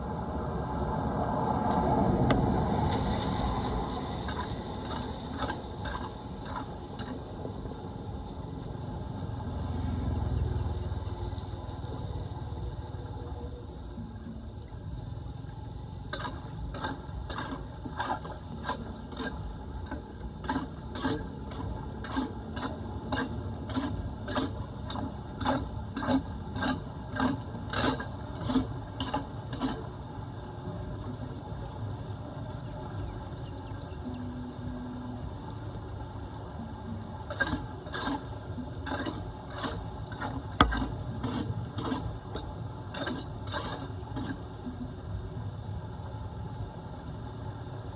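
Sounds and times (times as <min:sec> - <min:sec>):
low rushing noise: 0:00.0 - 0:04.8
hand tool striking drain grate: 0:40.6 - 0:42.0.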